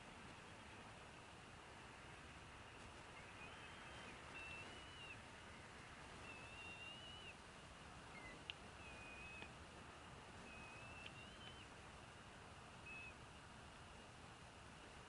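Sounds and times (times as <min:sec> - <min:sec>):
thin whistled bird calls: 0:03.1 - 0:07.4, 0:08.1 - 0:09.6, 0:10.4 - 0:11.7, 0:12.8 - 0:13.2.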